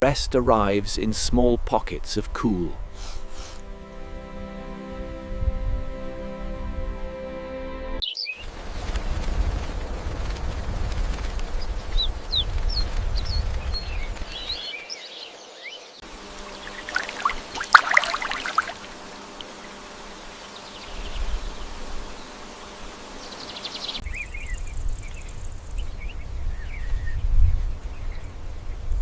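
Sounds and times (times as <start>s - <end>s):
low wind rumble: 0.3s - 7.1s, 8.4s - 14.8s, 24.0s - 29.0s
small birds chirping: 8.0s - 8.9s, 10.9s - 28.8s
rapid clicks and rustles: 8.6s - 14.3s.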